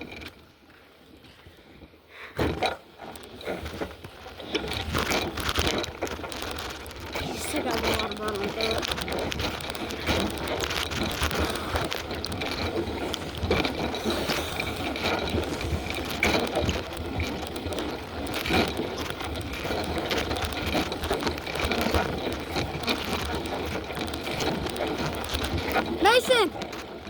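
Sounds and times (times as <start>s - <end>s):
bicycle rolling: 0.0s - 27.0s
bicycle rattling clicks: 2.6s - 27.0s.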